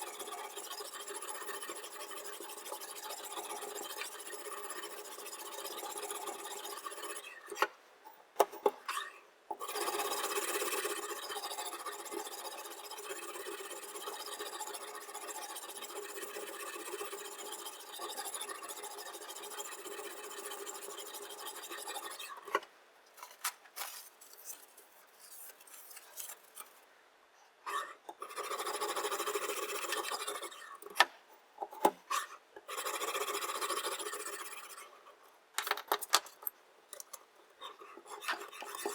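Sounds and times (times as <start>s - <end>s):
sharpening stone rasping on knife: 9.6s - 22.4s.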